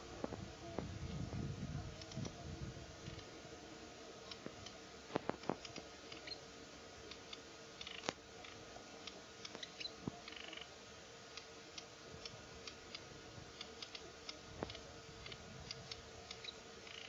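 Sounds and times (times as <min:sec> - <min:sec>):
sharp clicks: 0:12.8 - 0:17.0.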